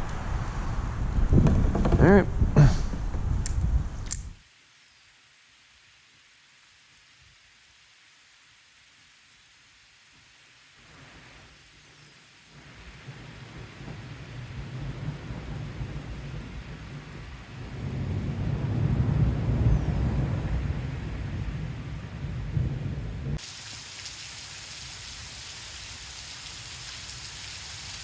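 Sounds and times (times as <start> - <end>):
faint rain hiss: 3.3 - 28.0
thunder rumbling: 13.0 - 28.0.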